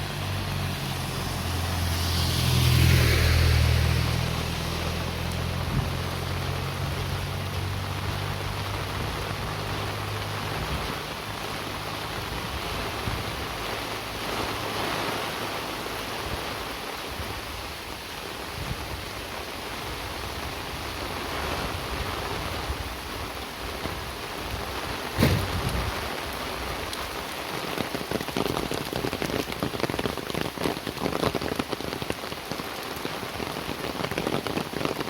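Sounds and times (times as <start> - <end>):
low engine hum: 0.0 - 14.7
steady rain: 0.0 - 35.0
sharp knock: 25.2 - 25.9.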